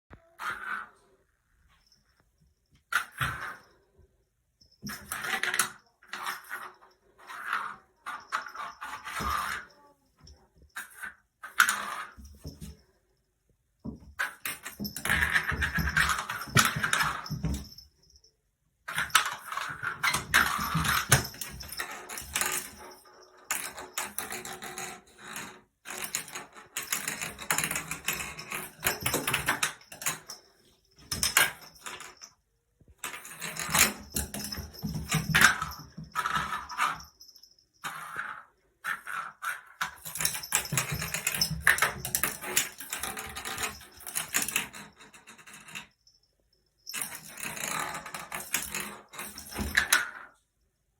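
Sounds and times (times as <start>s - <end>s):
cat rattling hard object: 13.8s - 17.9s, 18.9s - 32.3s, 32.9s - 45.9s, 46.8s - 50.3s.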